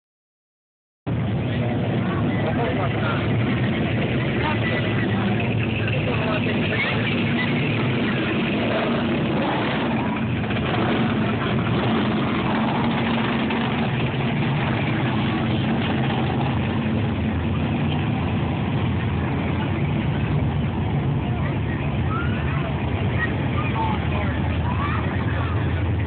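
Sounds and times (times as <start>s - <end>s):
car engine idling: 1.1s - 26.0s.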